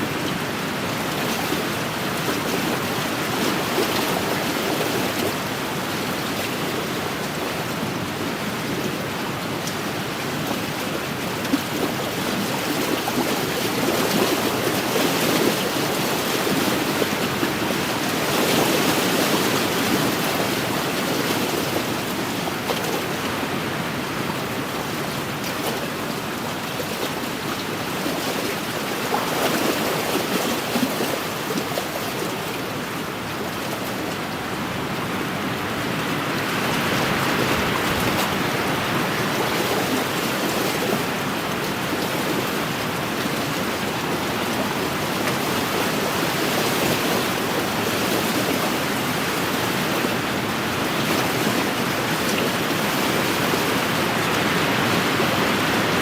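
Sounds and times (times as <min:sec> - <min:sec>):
waves washing against shore: 0:00.0 - 0:56.0.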